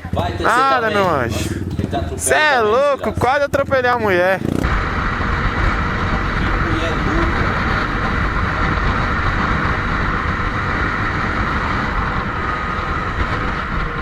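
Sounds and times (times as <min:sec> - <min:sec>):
motorcycle road noise: 0:00.0 - 0:14.0
wind rush: 0:04.4 - 0:14.0.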